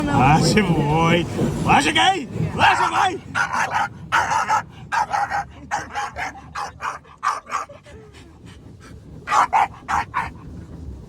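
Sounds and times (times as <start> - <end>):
dog barking in high yips: 3.4 - 7.7, 9.3 - 10.4.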